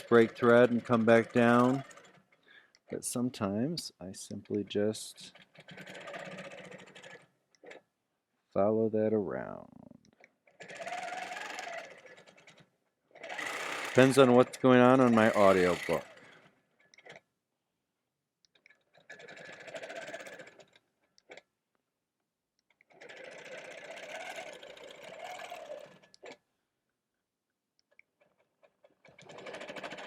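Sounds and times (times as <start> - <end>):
quilting machine stitching: 0.0 - 3.3, 4.5 - 7.9, 10.2 - 17.2, 18.5 - 21.5, 22.7 - 26.4, 27.9 - 30.0.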